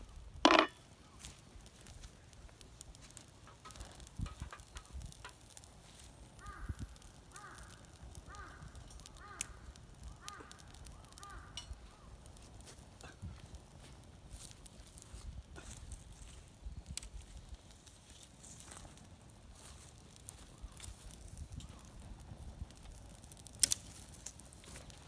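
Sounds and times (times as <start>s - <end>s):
crow cawing: 6.4s - 11.6s.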